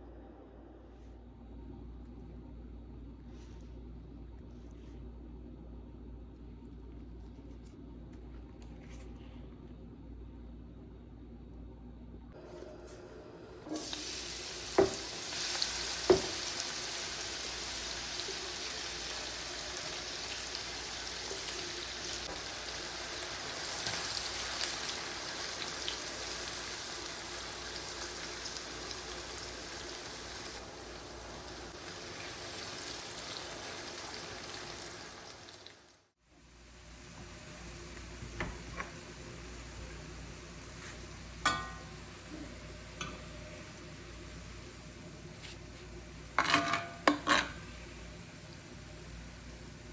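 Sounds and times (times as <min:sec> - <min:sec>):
food sizzling in hot oil: 0:13.6 - 0:45.0.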